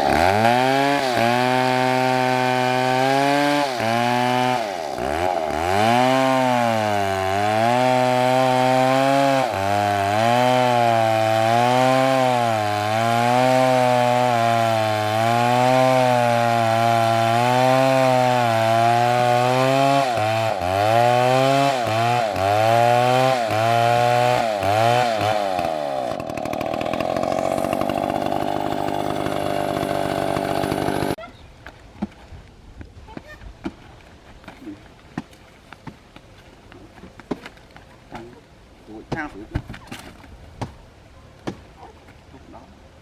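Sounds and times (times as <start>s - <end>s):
chainsaw cutting wood: 0.0s - 31.2s.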